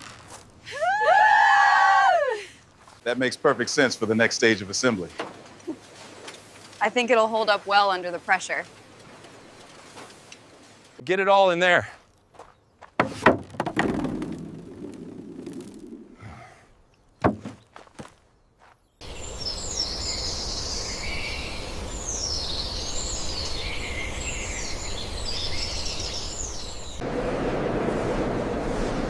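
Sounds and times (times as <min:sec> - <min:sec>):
small birds chirping: 0:03.0 - 0:13.0, 0:16.3 - 0:27.0
sharp knocks: 0:13.0 - 0:14.4, 0:17.2 - 0:17.7.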